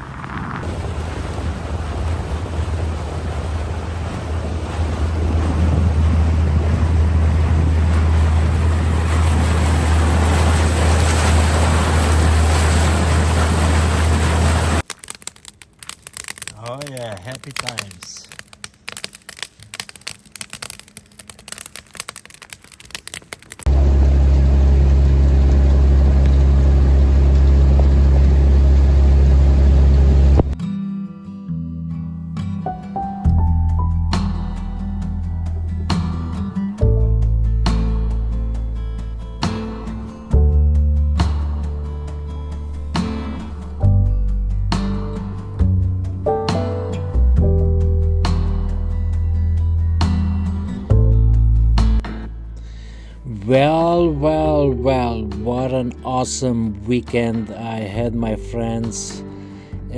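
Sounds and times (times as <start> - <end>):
boat motor rumble: 0.0 - 14.8, 23.7 - 30.6, 33.5 - 47.8, 53.0 - 59.9
engine droning: 0.0 - 14.8, 23.7 - 30.6
wind buffeting microphone: 0.0 - 14.8
rushing water: 0.0 - 14.9, 41.6 - 43.9.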